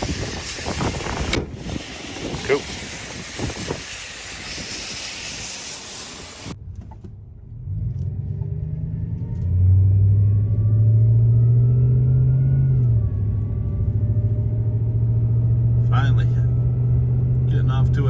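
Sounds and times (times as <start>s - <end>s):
steady hiss: 0.0s - 6.6s
pickup truck engine pulling away: 7.6s - 18.0s.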